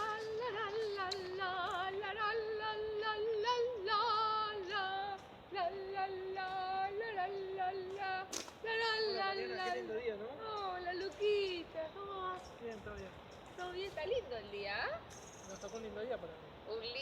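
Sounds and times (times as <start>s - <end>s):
woman singing wordless melody: 0.0s - 12.6s.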